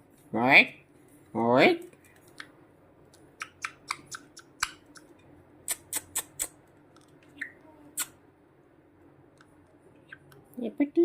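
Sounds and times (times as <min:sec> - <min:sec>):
parrot beak clicking: 0:03.4 - 0:06.6.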